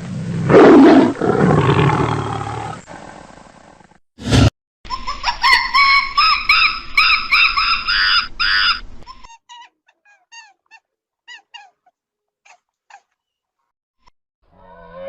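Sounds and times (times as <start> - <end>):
high-pitched animal calls: 14.6 - 15.0.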